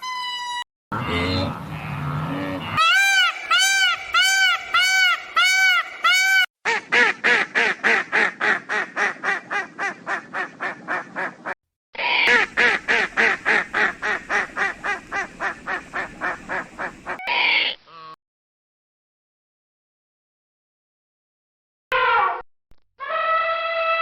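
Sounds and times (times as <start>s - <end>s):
waterfowl harsh calls: 1.0s - 18.2s.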